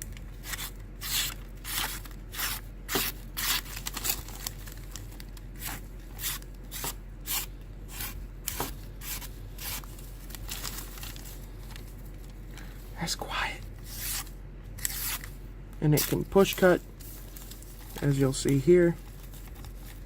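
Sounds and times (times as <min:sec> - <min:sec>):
knife slicing paper: 0:00.4 - 0:04.5, 0:05.6 - 0:11.2, 0:13.9 - 0:15.3.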